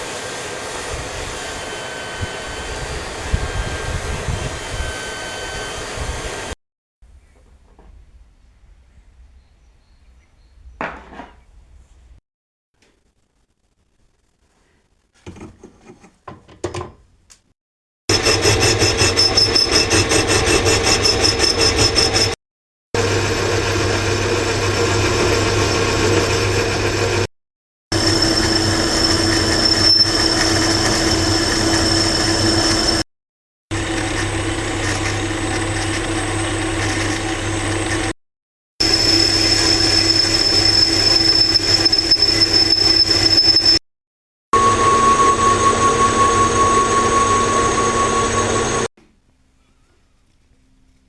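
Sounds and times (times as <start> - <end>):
machine running with high whine: 18.1 - 22.4, 27.9 - 33.0, 38.8 - 43.8, 44.6 - 48.9.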